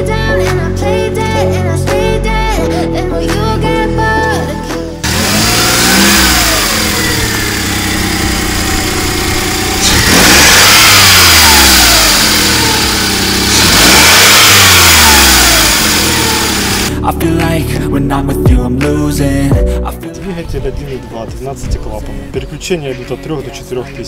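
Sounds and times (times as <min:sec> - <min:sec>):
car engine revving: 0:05.0 - 0:17.0.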